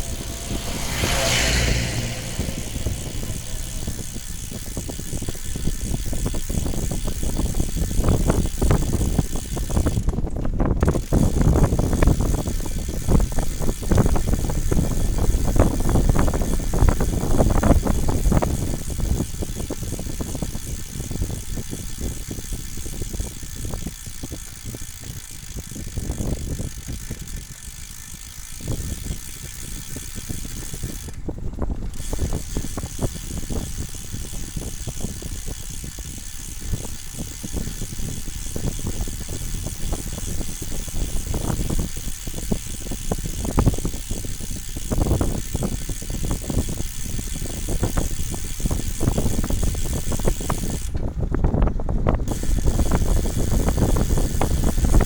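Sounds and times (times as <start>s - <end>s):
light rattle: 0.0s - 20.4s
wind buffeting microphone: 0.0s - 55.0s.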